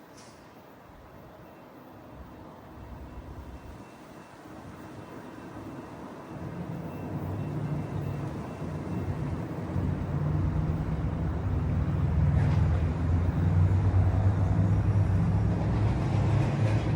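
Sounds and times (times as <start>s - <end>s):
heavy vehicle engine rumble: 8.9s - 16.9s.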